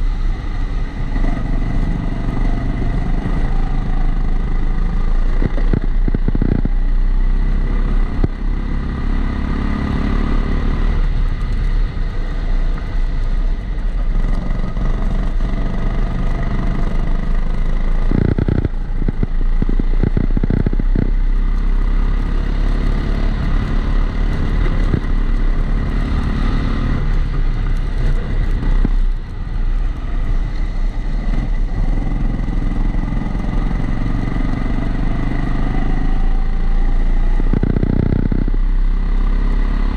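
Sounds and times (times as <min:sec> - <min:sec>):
kart engine revving: 0:14.4 - 0:21.1, 0:31.3 - 0:38.6.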